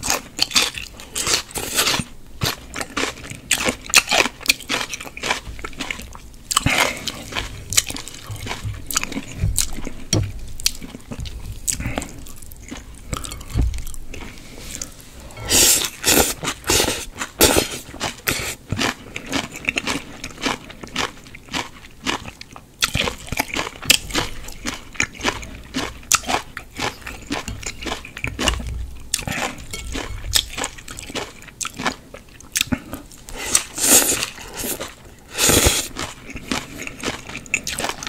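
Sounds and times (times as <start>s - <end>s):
person chewing noodles: 0.0s - 38.0s.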